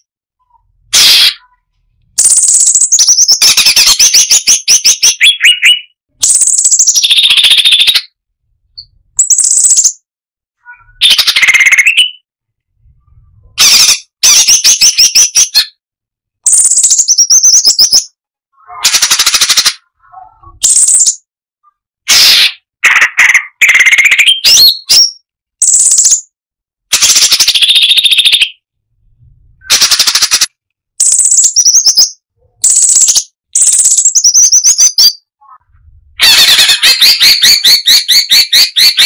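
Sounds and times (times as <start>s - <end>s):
bulbul singing rattling phrases: 0.0s - 8.2s, 8.8s - 12.2s, 16.4s - 21.8s, 22.9s - 26.3s, 29.2s - 39.0s.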